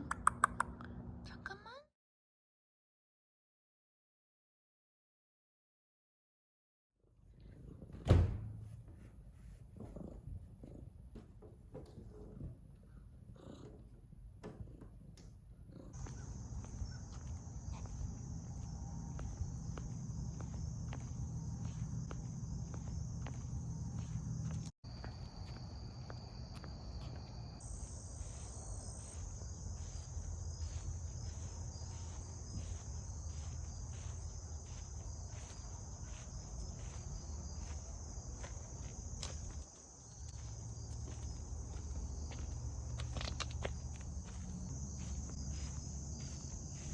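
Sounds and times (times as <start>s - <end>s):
footsteps crunching through grass: 16.0s - 46.9s
insects chirring: 16.0s - 46.9s.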